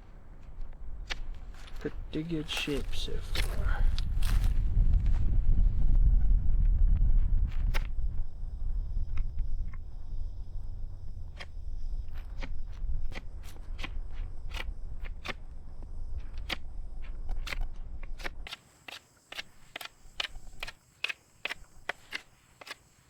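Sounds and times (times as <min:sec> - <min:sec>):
knife shaving wood: 0:00.0 - 0:04.4, 0:17.4 - 0:23.0
low rumble: 0:00.0 - 0:18.1.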